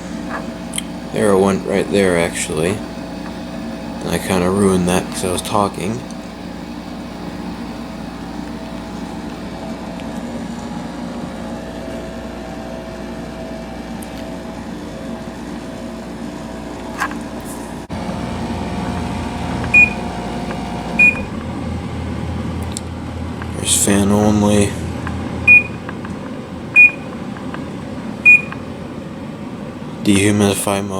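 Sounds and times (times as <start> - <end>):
air conditioner humming: 0.0 - 30.9
control panel beeps: 19.6 - 21.3, 25.5 - 26.2, 26.8 - 27.6, 28.2 - 28.7.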